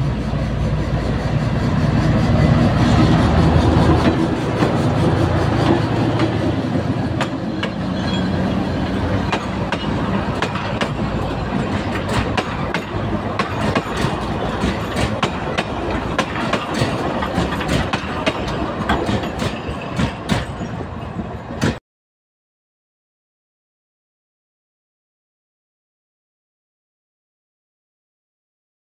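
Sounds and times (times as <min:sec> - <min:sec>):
diesel locomotive engine drone: 0:00.0 - 0:21.8
wheels clicking over rail joints: 0:03.2 - 0:21.8.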